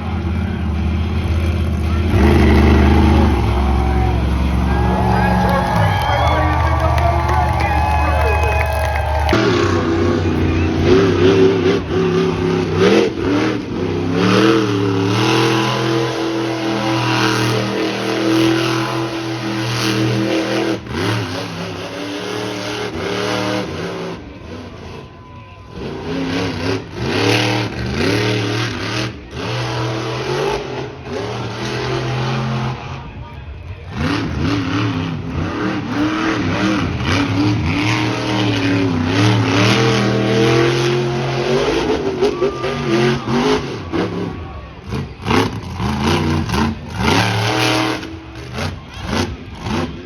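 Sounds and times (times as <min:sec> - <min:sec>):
truck engine revving hard: 0:00.0 - 0:50.0.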